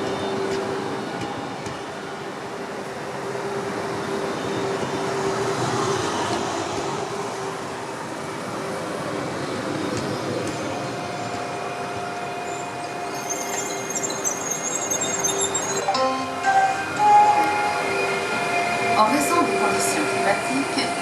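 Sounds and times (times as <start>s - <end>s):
train wheels rumbling on rails: 0.0s - 15.8s.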